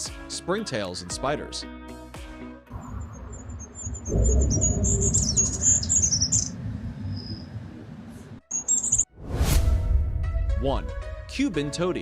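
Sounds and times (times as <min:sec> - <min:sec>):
low rumbling noise: 0:02.7 - 0:08.5
goldcrest calling: 0:03.1 - 0:07.5, 0:08.5 - 0:09.0.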